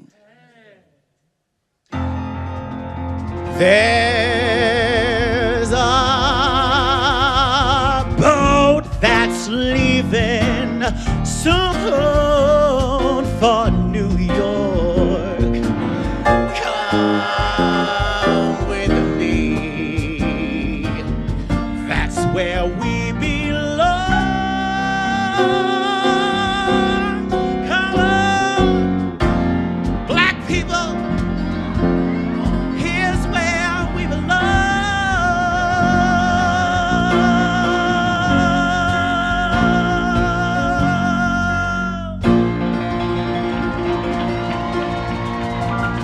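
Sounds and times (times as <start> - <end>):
piano accompaniment: 1.9 - 46.0
person singing with vibrato: 3.5 - 29.2, 32.6 - 42.4.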